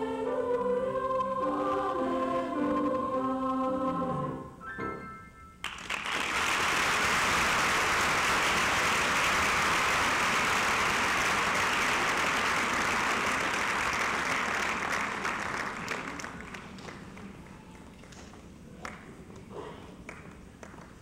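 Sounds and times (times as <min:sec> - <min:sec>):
audience applauding: 0:05.6 - 0:19.0.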